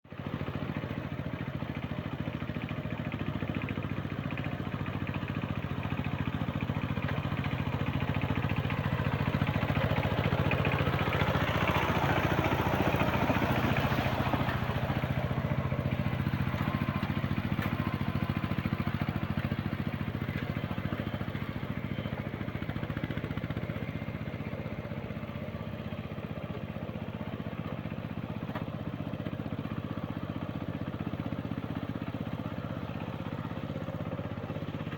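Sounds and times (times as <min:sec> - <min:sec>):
walking tractor engine chugging: 0:00.1 - 0:34.9.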